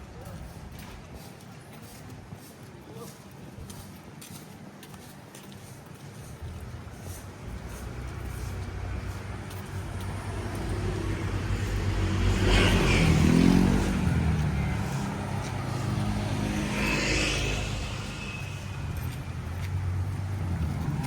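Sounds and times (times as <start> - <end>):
low traffic hum: 0.0 - 21.0
vehicle passing by: 7.2 - 21.0.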